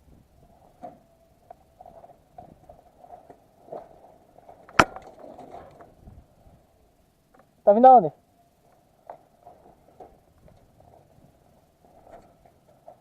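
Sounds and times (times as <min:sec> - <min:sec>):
airsoft gun shot crack: 0:04.7 - 0:05.0.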